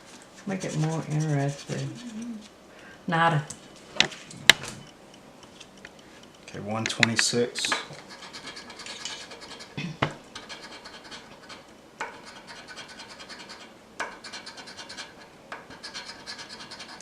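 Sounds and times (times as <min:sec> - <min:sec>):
scraping scratch-off ticket: 0:00.5 - 0:02.5.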